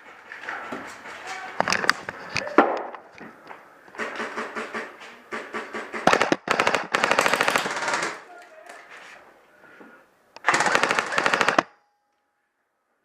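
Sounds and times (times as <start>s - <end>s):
airsoft rifle firing full-auto: 5.9s - 8.2s, 10.4s - 11.8s.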